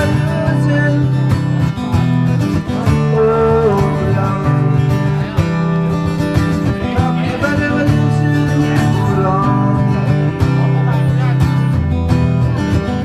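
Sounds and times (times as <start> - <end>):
acoustic guitar blues: 0.0 - 13.0.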